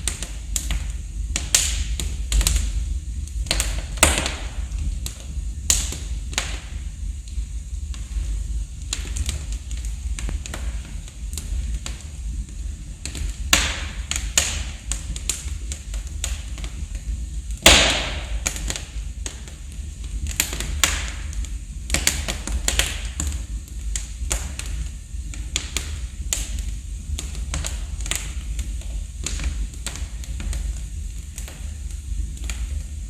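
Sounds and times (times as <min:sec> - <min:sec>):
sharp pops of fire: 0:00.0 - 0:33.0
wood fire crackling: 0:00.0 - 0:33.0
low rumble: 0:16.4 - 0:20.2.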